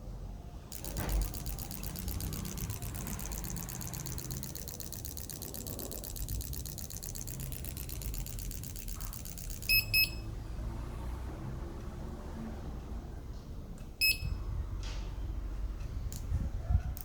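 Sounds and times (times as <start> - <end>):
machine humming and ticking: 0.7 - 11.0, 11.8 - 17.0
short electronic beeps: 6.8 - 10.4, 14.0 - 14.4.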